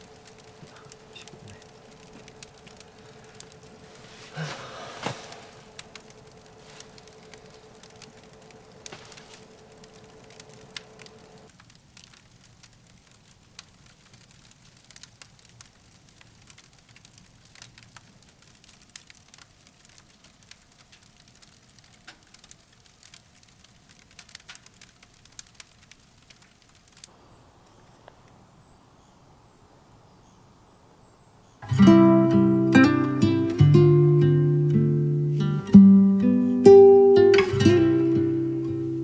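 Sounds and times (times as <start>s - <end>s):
faint steady hum: 0.0s - 11.5s, 27.1s - 39.0s
firewood crackling in a stove: 0.0s - 39.0s.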